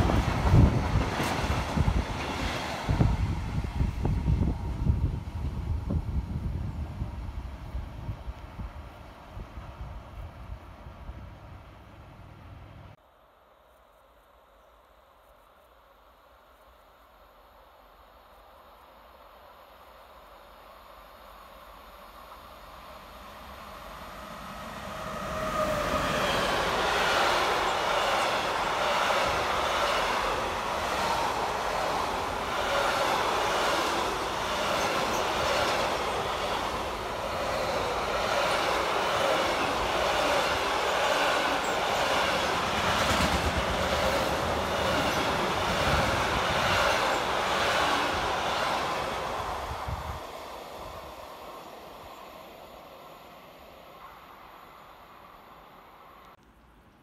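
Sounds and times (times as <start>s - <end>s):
train wheels clattering on rails: 0.0s - 3.1s, 26.2s - 49.0s.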